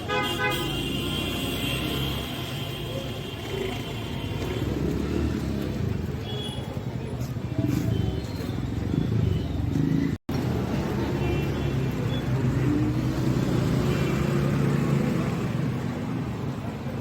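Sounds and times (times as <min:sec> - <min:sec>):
passing vehicles humming: 0:08.5 - 0:17.0.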